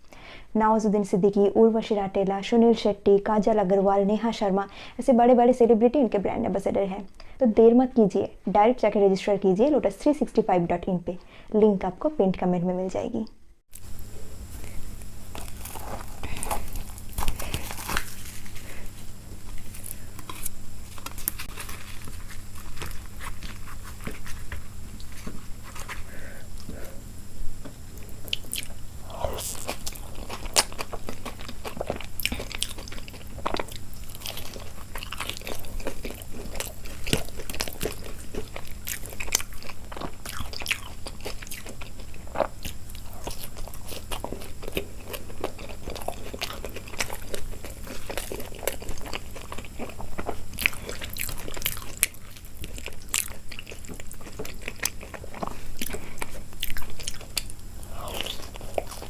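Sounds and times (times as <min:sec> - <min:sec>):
person chewing crunchy food: 0:13.7 - 0:59.0.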